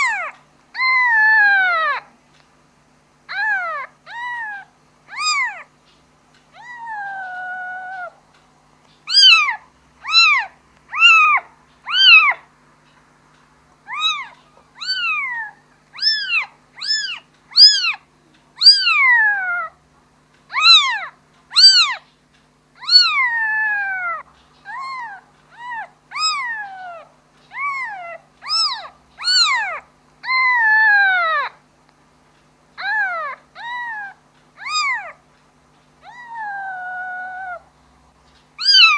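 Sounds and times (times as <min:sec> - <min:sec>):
kitten meowing: 0:03.3 - 0:05.7, 0:06.6 - 0:08.2, 0:09.1 - 0:12.4, 0:13.9 - 0:18.0, 0:18.6 - 0:19.7, 0:20.5 - 0:22.0, 0:22.8 - 0:31.6, 0:32.8 - 0:35.2, 0:36.0 - 0:37.6, 0:38.6 - 0:38.9.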